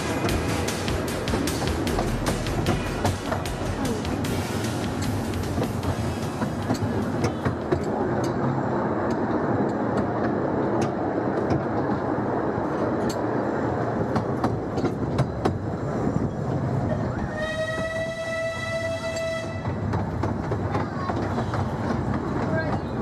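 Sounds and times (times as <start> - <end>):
train rolling rumble: 0.0 - 23.0
wheels clicking over rail joints: 0.0 - 23.0
locomotive whistle: 17.1 - 19.8.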